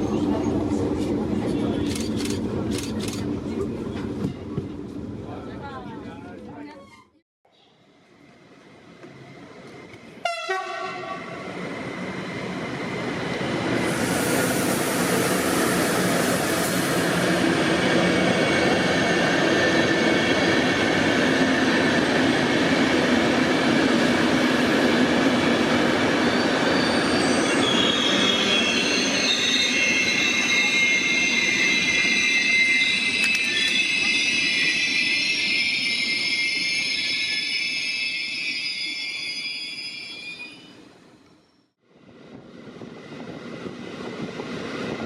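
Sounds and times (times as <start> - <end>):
train rumbling on rails: 0.0 - 7.2, 8.1 - 38.2, 40.8 - 45.0
high-pitched wheel squeal: 26.3 - 40.8.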